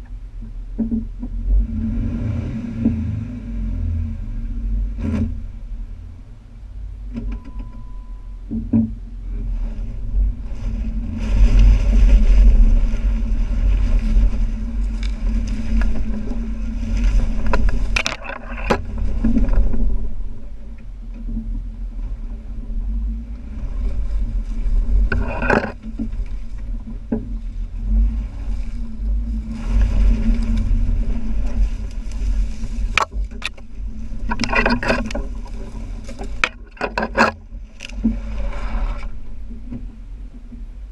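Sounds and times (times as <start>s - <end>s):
car engine at low speed: 0.0s - 40.9s
sharp knocks and scrapes: 4.9s - 5.6s, 8.5s - 20.6s, 24.5s - 40.0s
water splashing under tyres: 9.8s - 20.6s, 23.2s - 39.8s.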